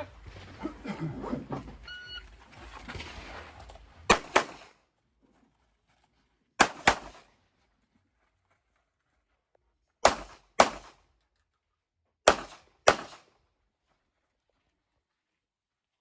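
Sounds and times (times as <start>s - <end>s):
gunshots in quick pairs: 4.1s - 4.8s, 6.6s - 7.3s, 10.0s - 11.0s, 12.3s - 13.3s.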